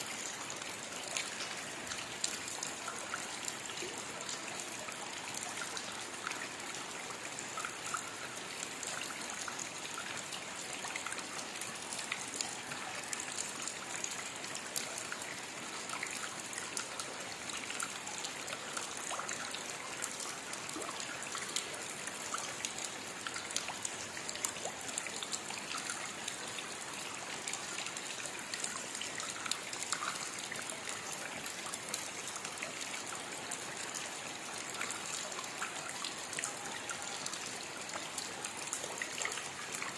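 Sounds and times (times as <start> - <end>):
steady rain falling: 0.0 - 39.9
trickling water: 0.0 - 39.9.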